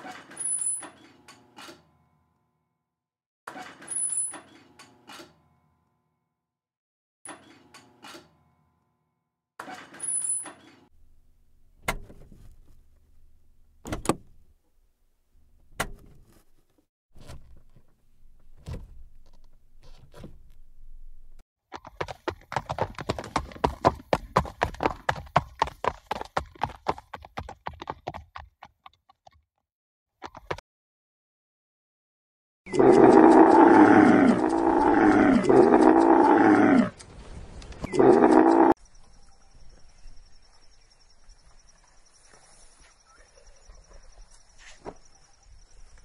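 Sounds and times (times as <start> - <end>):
galloping hooves on turf: 21.7 - 29.4.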